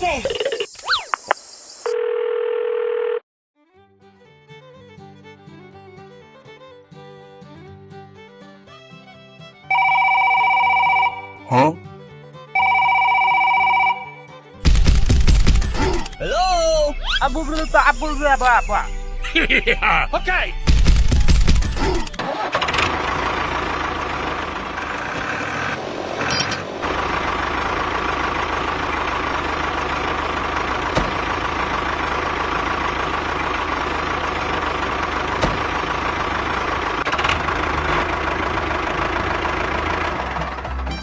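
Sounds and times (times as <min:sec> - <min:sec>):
vehicle engine running: 0:14.6 - 0:41.0.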